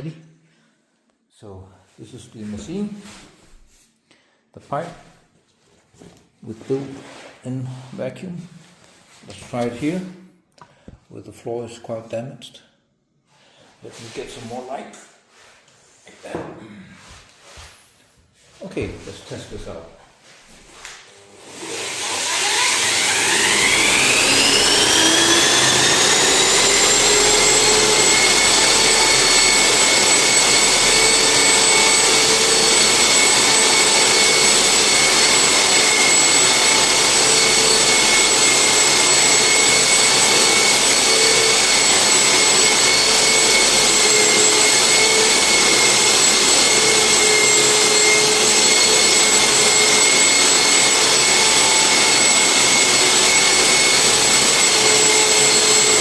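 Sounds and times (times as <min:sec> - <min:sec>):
floor sander motor whine: 0:20.7 - 0:56.0
vacuum extraction rushing noise: 0:21.4 - 0:56.0.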